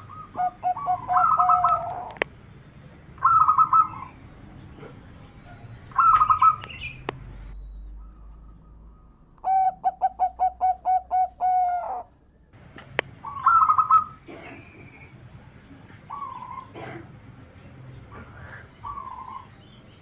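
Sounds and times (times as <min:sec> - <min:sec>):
dove cooing: 0:00.0 - 0:02.2, 0:03.2 - 0:07.0, 0:08.0 - 0:12.2, 0:13.2 - 0:15.1, 0:16.0 - 0:17.2, 0:18.0 - 0:19.8.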